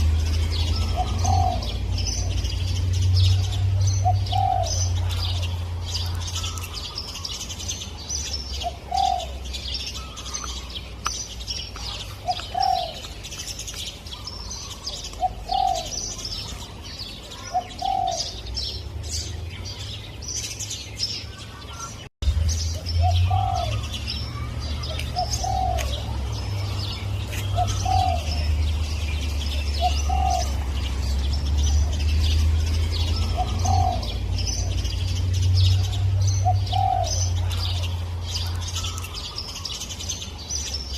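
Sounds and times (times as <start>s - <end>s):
small birds chirping: 0.0s - 40.9s
dove cooing: 0.6s - 7.3s, 8.6s - 9.4s, 11.9s - 13.2s, 14.2s - 16.6s, 17.3s - 18.5s, 23.0s - 28.7s, 29.5s - 30.8s, 32.6s - 35.0s, 35.7s - 39.7s.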